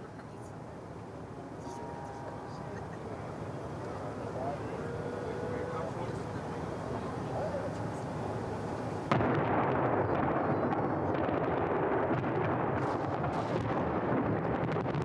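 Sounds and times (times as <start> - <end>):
fireworks booming and crackling: 3.3 - 15.0.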